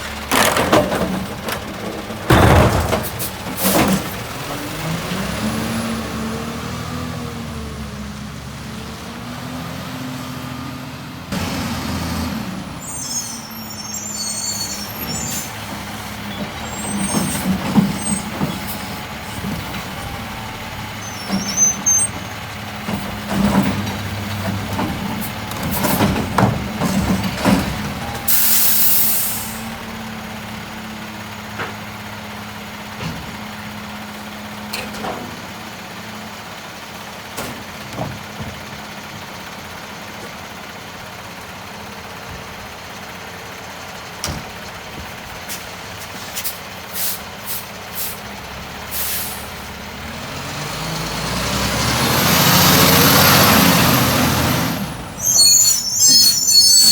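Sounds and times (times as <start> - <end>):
garbage truck diesel engine running: 0.0 - 56.9
metal clanks and knocks: 0.2 - 4.2, 22.1 - 28.2, 34.7 - 35.6, 37.3 - 39.2, 44.2 - 45.2
air-brake hiss: 28.3 - 29.7, 45.5 - 48.3, 48.9 - 49.7.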